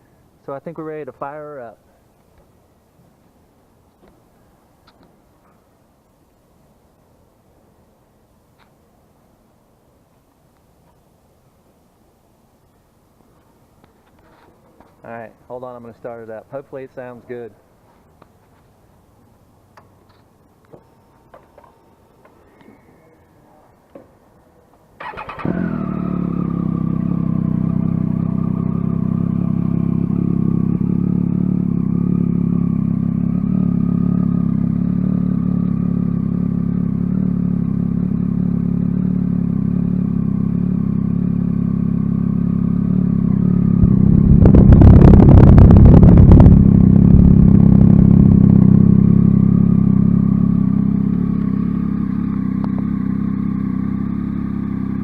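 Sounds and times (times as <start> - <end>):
motorcycle engine idling: 25.0 - 55.0.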